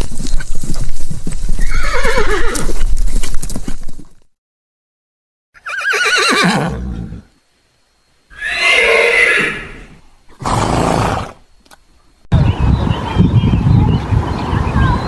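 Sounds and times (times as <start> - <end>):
horse whinnying: 1.6 - 2.7, 5.6 - 7.3, 8.3 - 11.4
horse breathy snort: 10.3 - 11.4.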